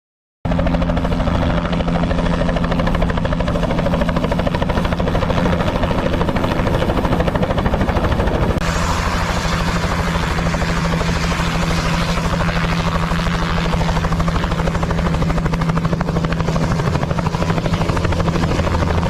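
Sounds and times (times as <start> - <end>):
helicopter running: 0.5 - 19.0.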